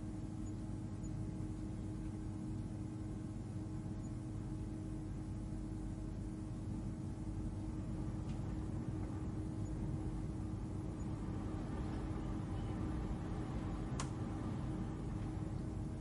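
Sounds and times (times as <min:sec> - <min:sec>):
spacecraft cabin hum: 0:00.0 - 0:16.0.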